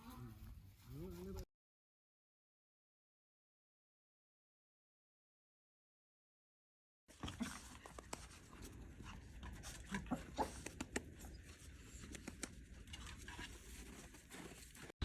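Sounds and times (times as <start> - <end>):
dog panting: 7.1 - 14.9.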